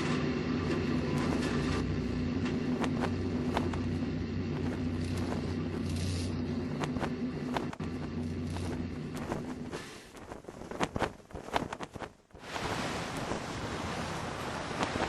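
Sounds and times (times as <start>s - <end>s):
vehicle engine humming: 0.0s - 10.4s.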